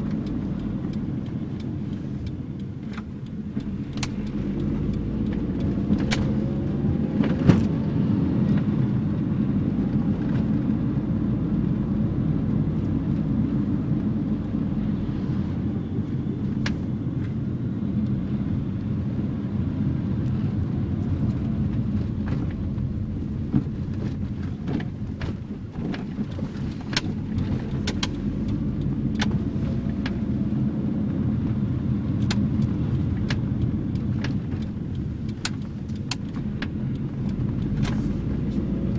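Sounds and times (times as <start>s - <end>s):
car engine running: 0.0s - 38.9s
sharp clicks and rattles: 21.0s - 30.3s, 32.2s - 38.9s.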